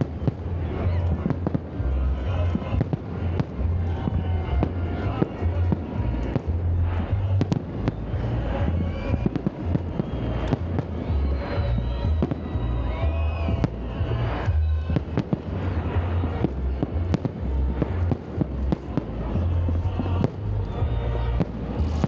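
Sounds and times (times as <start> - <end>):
background music: 0.0 - 22.0
fireworks bangs and crackling: 0.0 - 22.0.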